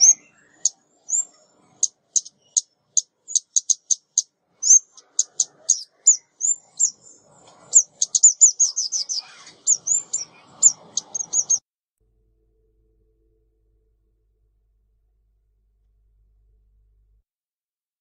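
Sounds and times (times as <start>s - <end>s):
bird calls with high chips and trill: 0.0s - 11.6s.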